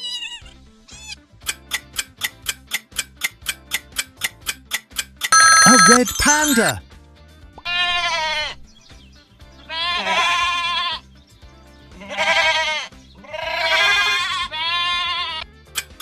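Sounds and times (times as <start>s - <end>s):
sheep bleating: 9.7s - 11.0s, 12.0s - 15.4s.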